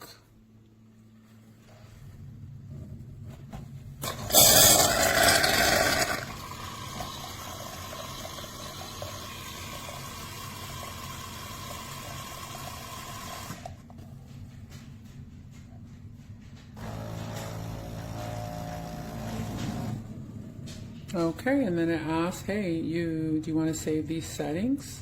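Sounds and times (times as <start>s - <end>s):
milk frother hissing: 4.0s - 13.7s.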